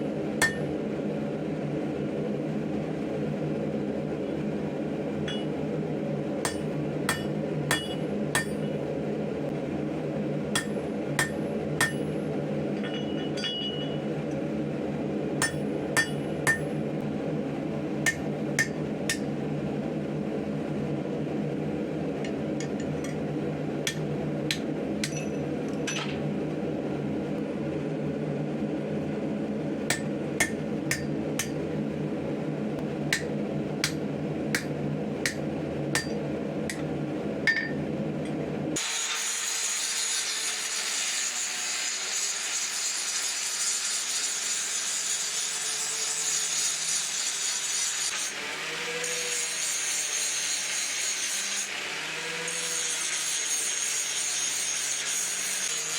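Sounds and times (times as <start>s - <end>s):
hammer striking steel on anvil: 0.4s - 0.8s, 5.2s - 5.6s, 6.4s - 8.8s, 10.5s - 12.2s, 12.8s - 14.1s, 15.4s - 16.8s, 18.1s - 19.3s, 22.6s - 23.2s, 23.8s - 26.2s, 29.9s - 31.6s, 33.1s - 41.0s.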